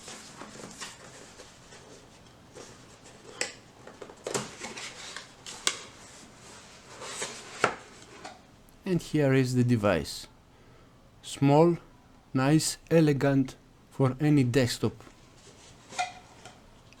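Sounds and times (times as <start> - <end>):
packaging rustling: 0.0 - 8.4.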